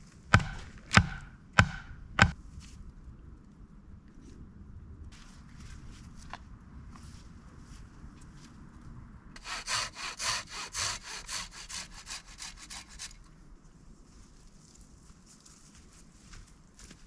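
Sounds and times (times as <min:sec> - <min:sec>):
hand saw cutting wood: 0:00.3 - 0:02.4, 0:09.4 - 0:13.3.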